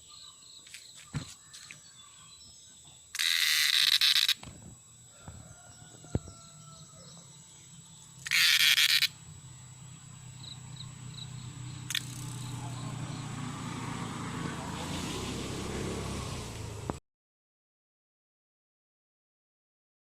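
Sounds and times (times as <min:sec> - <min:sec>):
cicada rasping buzz: 0:03.1 - 0:16.8.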